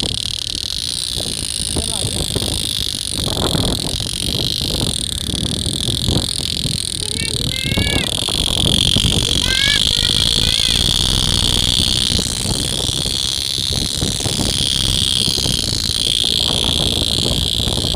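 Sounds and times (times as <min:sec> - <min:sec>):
low rumble: 0:08.0 - 0:15.9
high-pitched chirring chorus: 0:09.0 - 0:13.3.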